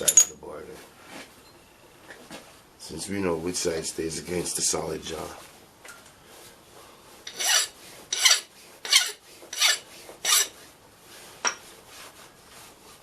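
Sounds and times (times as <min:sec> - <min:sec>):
hand file on steel: 0:07.3 - 0:10.6.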